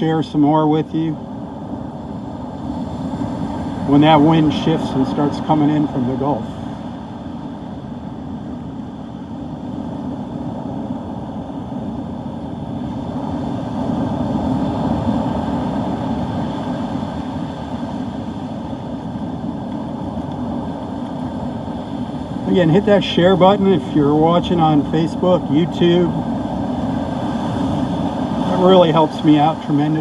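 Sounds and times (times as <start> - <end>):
storm surf: 0.0 - 30.0
wind rumbling on microphone: 0.0 - 30.0.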